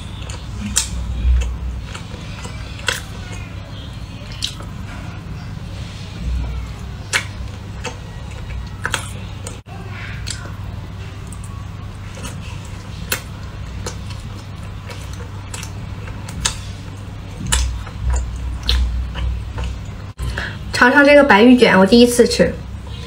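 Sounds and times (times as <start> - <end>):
person chewing donut: 0.0 - 20.5
steady low hum: 0.0 - 23.0
wet mouth clicks and smacks: 7.1 - 7.4.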